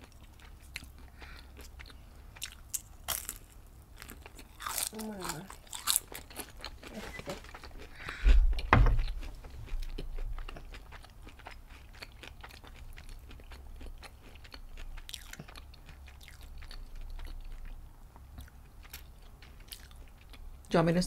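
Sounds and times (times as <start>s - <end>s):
chewing crispy food: 0.0s - 20.7s
dull thumps: 8.3s - 9.3s.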